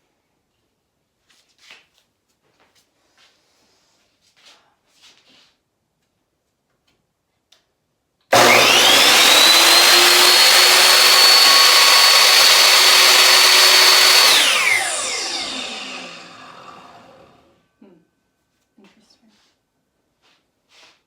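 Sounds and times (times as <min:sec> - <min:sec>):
miter saw motor whining: 0:08.3 - 0:17.5.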